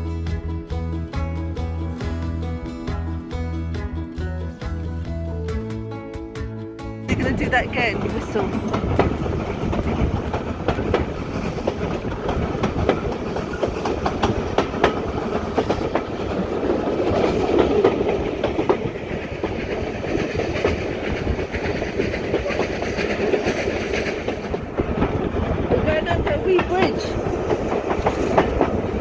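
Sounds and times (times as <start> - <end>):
train carriage rumble: 0.0 - 29.0
wheels clicking over rail joints: 7.1 - 29.0.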